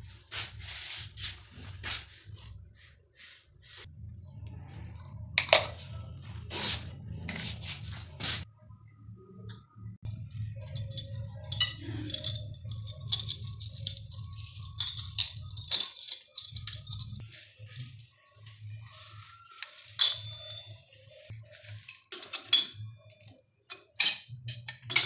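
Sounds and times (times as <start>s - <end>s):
steady low hum: 0.0s - 17.2s
metal scrapes and knocks: 4.8s - 8.4s
small metallic clinks: 10.8s - 17.2s, 19.6s - 20.7s.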